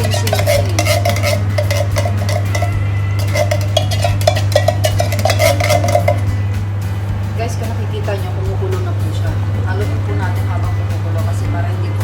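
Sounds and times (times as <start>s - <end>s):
spoon scraping cookware: 0.0s - 6.4s.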